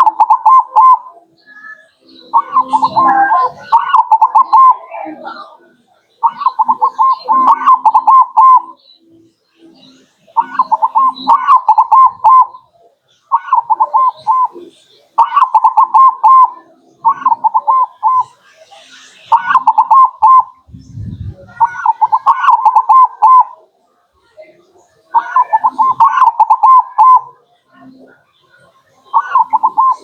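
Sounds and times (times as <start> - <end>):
dove cooing: 0.0 - 1.2, 2.3 - 5.6, 6.2 - 8.8, 10.3 - 18.4, 19.2 - 23.7, 25.1 - 28.0, 29.1 - 30.0.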